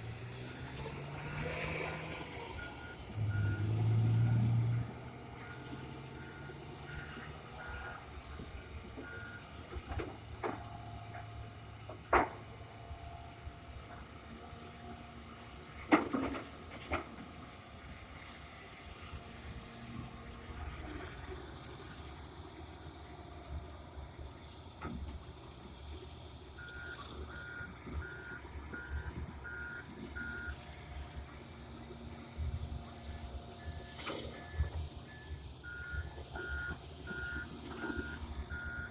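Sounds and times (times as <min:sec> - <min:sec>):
engine running: 0:00.0 - 0:38.9
backup alarm beeping: 0:33.6 - 0:38.9.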